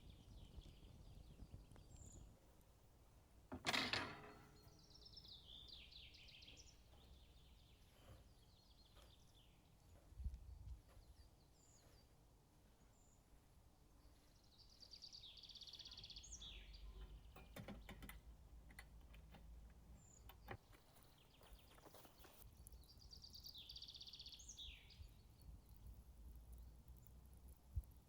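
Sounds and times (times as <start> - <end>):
faint forest ambience: 0.0 - 28.0
faint clicks: 17.0 - 22.8.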